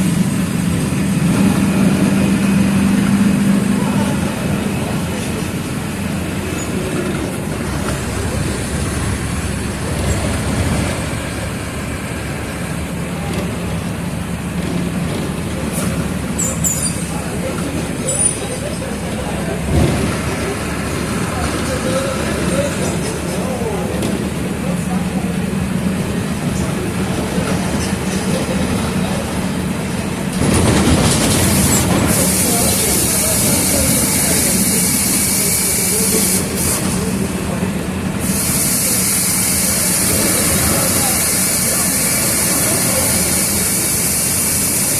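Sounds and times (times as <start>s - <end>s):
bus body rattle: 0.0s - 12.1s, 12.9s - 44.9s
bus diesel engine droning: 0.0s - 44.9s
road noise: 0.0s - 44.9s
high hiss: 38.2s - 44.9s.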